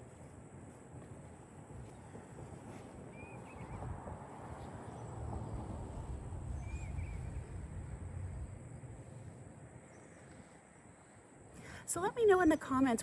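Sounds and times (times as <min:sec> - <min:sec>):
low background rumble: 0:03.6 - 0:10.2.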